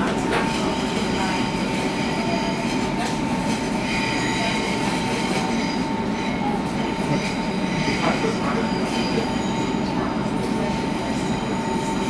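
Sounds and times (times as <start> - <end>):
train wheels rumbling on rail: 0.0 - 12.0
wheel squeal: 7.6 - 12.0.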